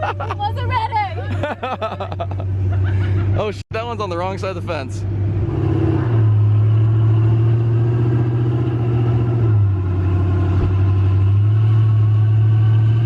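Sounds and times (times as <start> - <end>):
truck engine running under load: 4.3 - 13.0.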